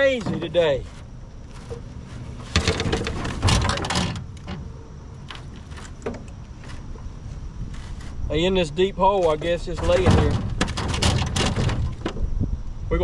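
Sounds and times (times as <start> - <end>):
knocks and clatter in a boat: 0.0 - 7.0, 9.2 - 12.4.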